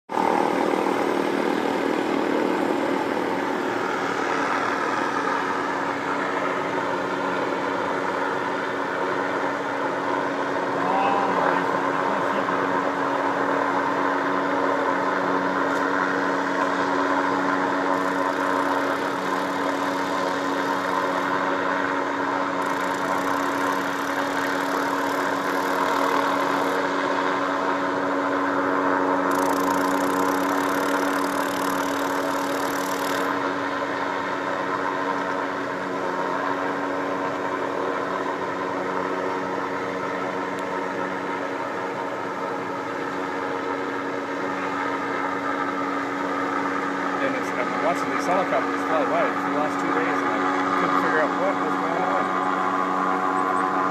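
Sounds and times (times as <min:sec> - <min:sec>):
engine humming steadily: 0:00.0 - 0:53.9.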